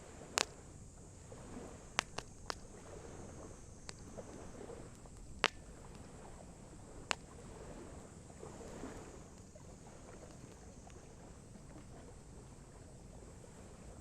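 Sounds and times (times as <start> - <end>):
faint steady hiss: 0.0 - 14.0
sharp pops of fire: 0.2 - 0.6, 1.9 - 2.8, 3.8 - 6.1
campfire wood crackling: 0.2 - 7.4, 8.8 - 11.8.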